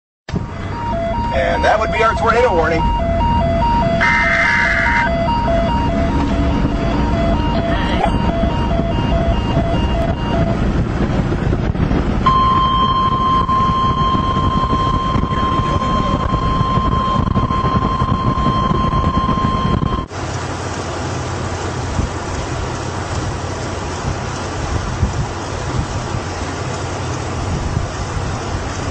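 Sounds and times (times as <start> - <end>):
vehicle road rumble: 0.3 - 28.9
weather radio alert tone: 0.4 - 10.6, 12.2 - 20.1.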